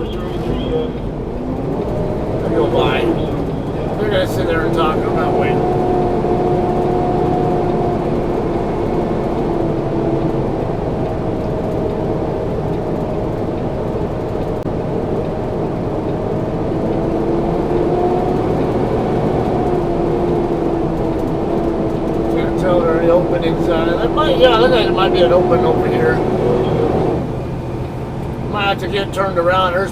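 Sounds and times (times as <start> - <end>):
truck diesel engine running: 0.0 - 29.9.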